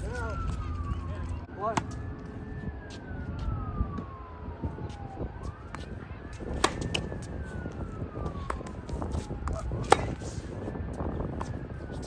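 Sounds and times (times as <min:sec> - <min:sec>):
distant siren wailing: 0:00.0 - 0:12.0
wind on microphone: 0:00.0 - 0:12.0.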